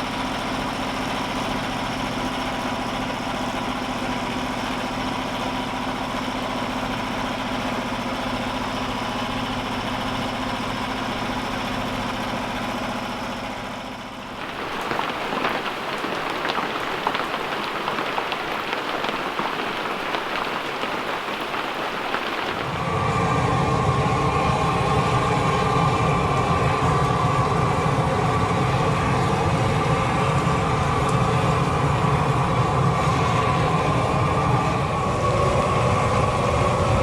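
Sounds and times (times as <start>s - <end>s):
dense crackling and pattering: 14.3s - 22.9s.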